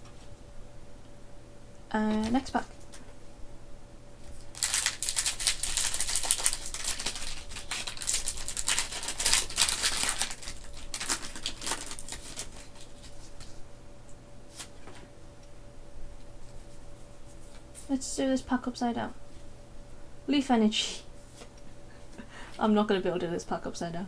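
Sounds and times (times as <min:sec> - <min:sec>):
foil wrapper crinkling: 0:04.2 - 0:13.6.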